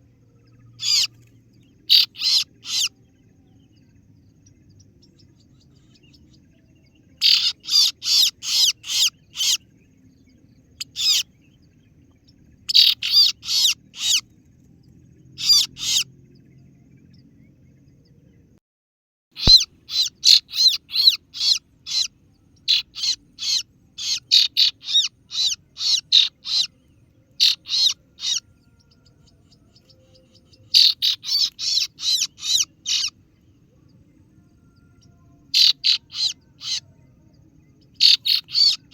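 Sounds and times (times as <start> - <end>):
sharp high bird call notes: 7.2 - 9.6, 19.4 - 22.1, 27.4 - 28.4, 30.7 - 33.2.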